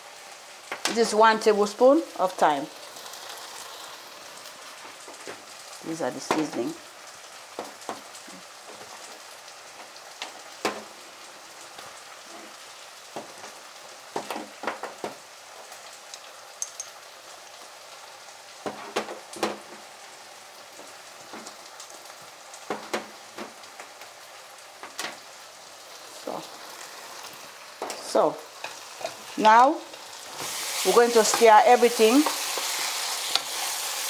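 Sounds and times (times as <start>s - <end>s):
food sizzling in a frying pan: 0.0s - 34.0s.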